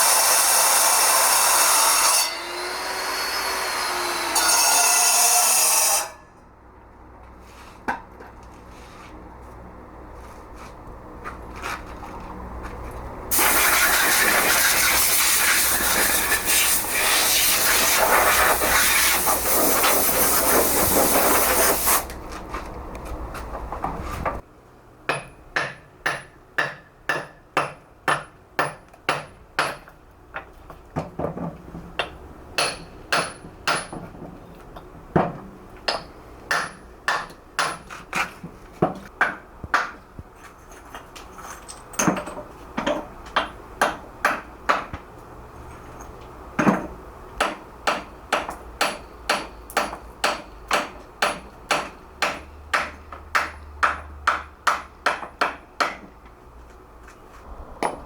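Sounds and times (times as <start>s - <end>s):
loud hissing machine: 13.3s - 22.1s
hammer striking chisel on stone: 25.1s - 30.5s, 32.0s - 34.1s, 35.9s - 40.0s, 42.0s - 45.0s, 46.6s - 56.2s.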